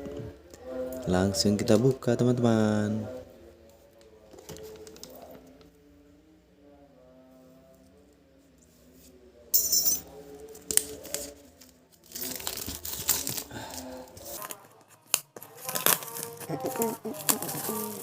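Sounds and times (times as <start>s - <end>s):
wrapper crinkling: 10.7s - 18.0s
packaging tearing: 12.0s - 18.0s.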